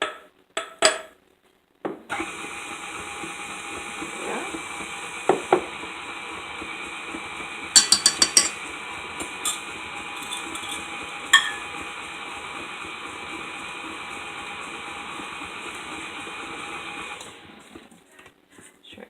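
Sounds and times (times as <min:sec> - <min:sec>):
electric mixer motor whine: 0:02.1 - 0:18.0.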